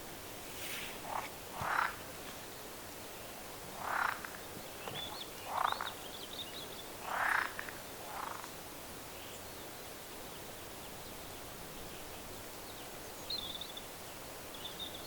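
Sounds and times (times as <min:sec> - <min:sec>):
frog croaking: 0:01.1 - 0:02.1, 0:03.8 - 0:04.4, 0:05.4 - 0:06.0, 0:07.0 - 0:08.5.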